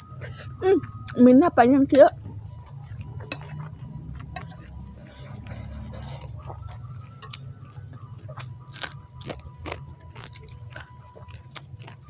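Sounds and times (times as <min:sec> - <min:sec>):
steady low hum: 0:00.0 - 0:12.0
wet mouth chewing clicks: 0:07.2 - 0:12.0.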